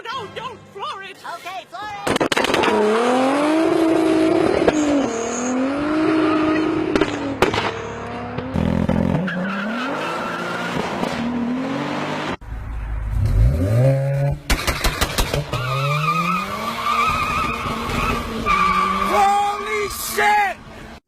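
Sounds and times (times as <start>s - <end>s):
rapid sharp cracks: 2.0s - 2.7s, 14.5s - 15.5s
car engine revving: 2.3s - 12.4s, 13.0s - 19.1s.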